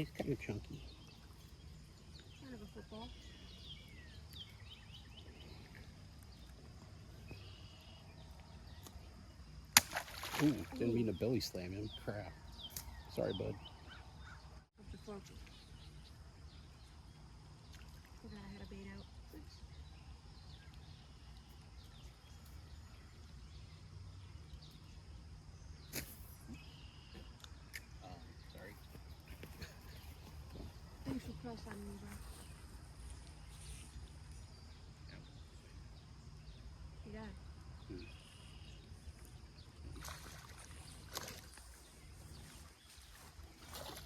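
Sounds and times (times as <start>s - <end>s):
water splashing beside boat: 9.8s - 11.0s, 39.8s - 44.0s.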